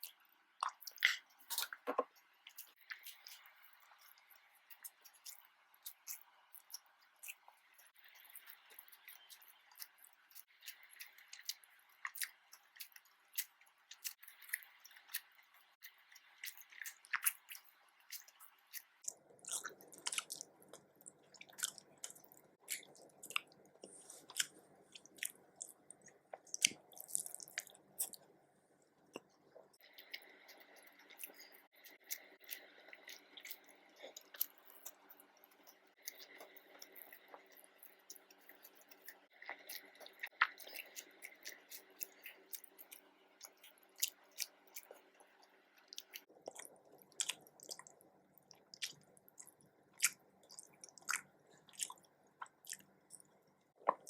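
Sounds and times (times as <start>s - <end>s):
person chewing: 0.0s - 54.0s
wet mouth clicks: 45.8s - 54.0s.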